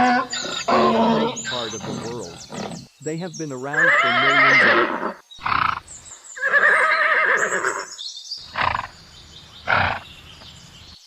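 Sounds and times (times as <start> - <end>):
animal calls: 0.0 - 2.9, 3.6 - 9.0, 9.6 - 10.5.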